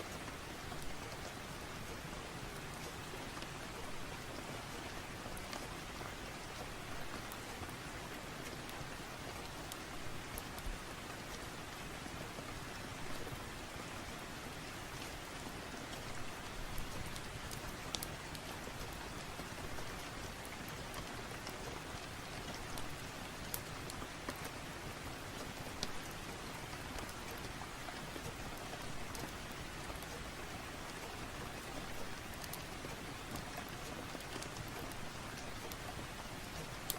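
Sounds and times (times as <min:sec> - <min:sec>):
steady rain hiss: 0:00.0 - 0:36.9.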